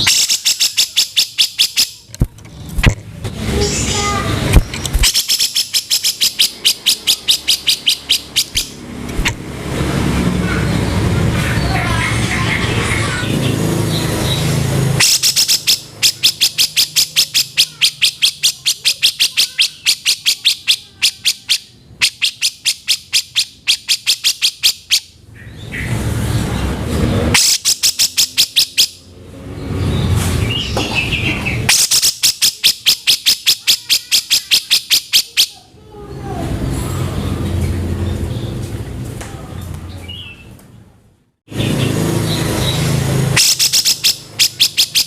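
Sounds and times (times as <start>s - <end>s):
low rumbling background noise: 1.9s - 18.8s, 35.5s - 43.4s.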